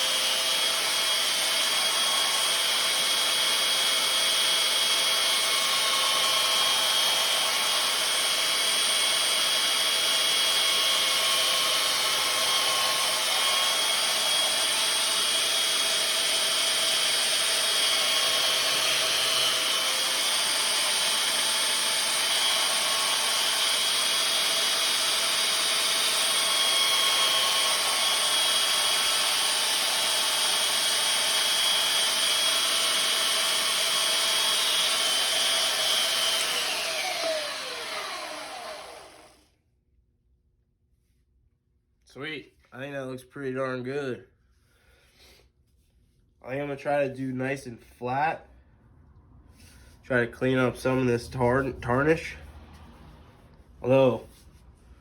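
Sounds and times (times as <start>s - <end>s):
power tool grinding steel: 0.0s - 39.4s, 49.6s - 54.4s.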